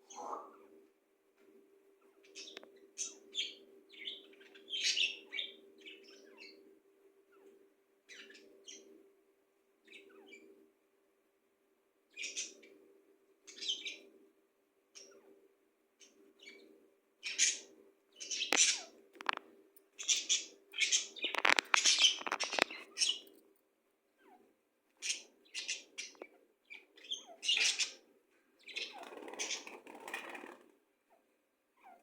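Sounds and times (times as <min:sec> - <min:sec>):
pet birds chirping: 0:00.0 - 0:00.8, 0:02.0 - 0:06.7, 0:07.3 - 0:08.9, 0:09.8 - 0:10.6, 0:12.1 - 0:12.8, 0:13.4 - 0:14.1, 0:14.9 - 0:15.4, 0:16.0 - 0:23.4, 0:24.2 - 0:32.0.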